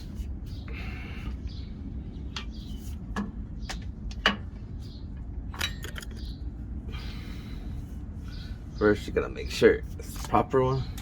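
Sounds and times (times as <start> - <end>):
metal tools clinking together: 5.6 - 6.3.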